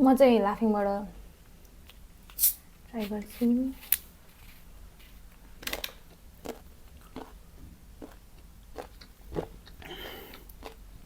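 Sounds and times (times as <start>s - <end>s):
wet chewing clicks: 8.0s - 10.8s.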